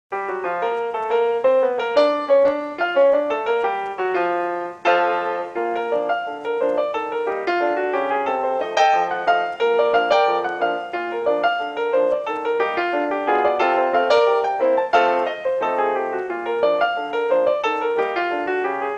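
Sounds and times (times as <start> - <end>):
piano music: 0.1 - 18.9.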